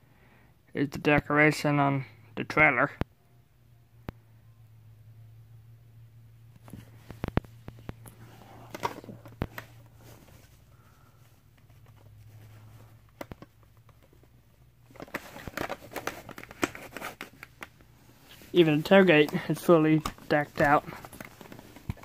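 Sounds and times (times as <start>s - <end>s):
rustling: 6.6s - 22.0s.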